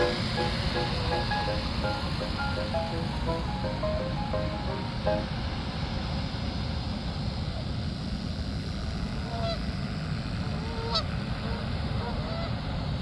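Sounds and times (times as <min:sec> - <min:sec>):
geese honking: 0:00.0 - 0:05.0.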